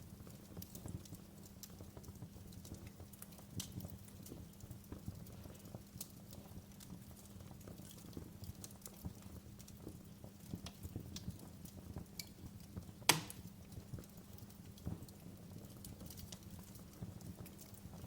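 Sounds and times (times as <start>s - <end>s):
fire crackling: 0.0s - 18.0s
fire flames rumbling: 0.0s - 18.0s
loud fire pop: 13.1s - 13.5s.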